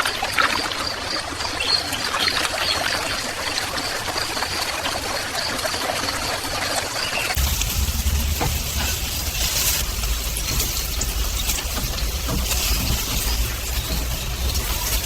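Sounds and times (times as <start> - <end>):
food sizzling on grill: 7.3 - 15.0.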